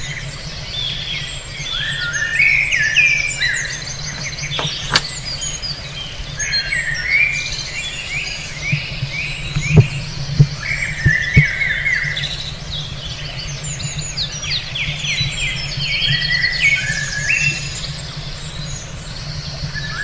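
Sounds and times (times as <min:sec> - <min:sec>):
birds chirping and singing: 0:00.7 - 0:08.4
sharp click: 0:04.1 - 0:05.2.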